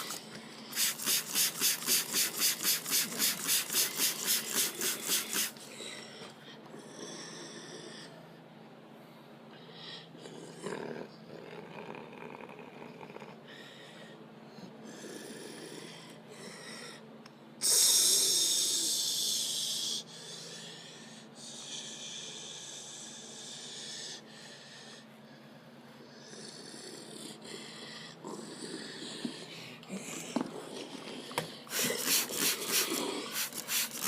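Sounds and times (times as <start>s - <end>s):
loud hiss: 0.7s - 5.5s.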